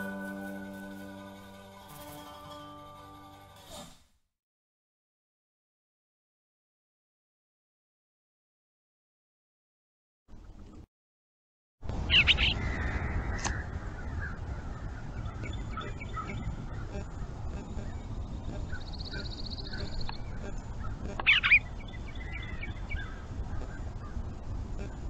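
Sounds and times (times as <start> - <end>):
steady low noise: 11.8 - 25.0
birds calling: 12.0 - 25.0
high bird trill: 12.1 - 25.0.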